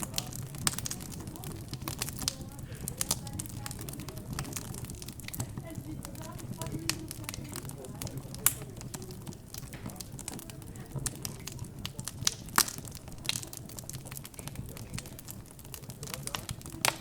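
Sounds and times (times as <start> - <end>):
murmur of background chatter: 0.0 - 17.0
wood fire crackling: 0.0 - 17.0.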